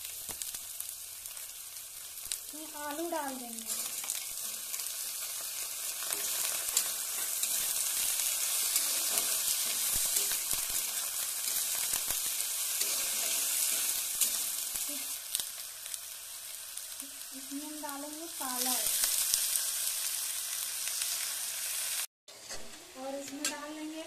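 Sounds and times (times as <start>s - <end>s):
vegetables sizzling in oil: 0.0s - 24.0s
steel spatula clicking and scraping: 3.7s - 14.9s.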